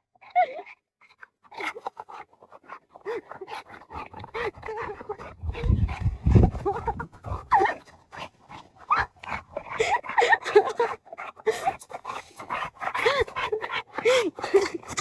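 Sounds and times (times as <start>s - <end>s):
dog panting: 0.4s - 15.0s.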